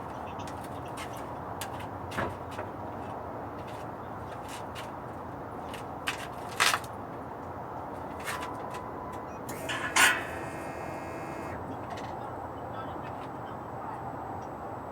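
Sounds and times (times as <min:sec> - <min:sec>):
sharp engine ticks: 0:09.5 - 0:11.6
diesel engine idling: 0:09.5 - 0:11.8.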